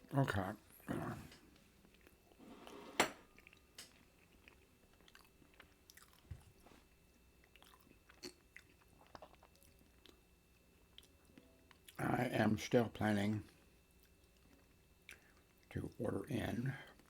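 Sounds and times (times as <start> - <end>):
person chewing food: 1.4 - 2.4, 3.2 - 12.0, 13.6 - 15.7.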